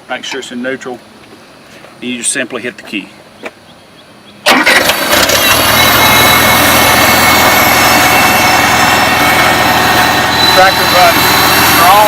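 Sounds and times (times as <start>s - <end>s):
tractor engine starting and running: 4.4s - 12.0s.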